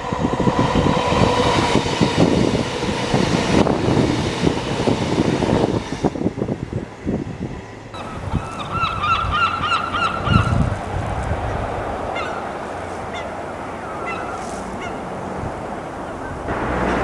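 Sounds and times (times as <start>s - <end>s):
steady background noise: 6.5s - 17.0s
bird honking calls: 8.0s - 10.5s, 12.2s - 12.4s, 13.1s - 15.1s.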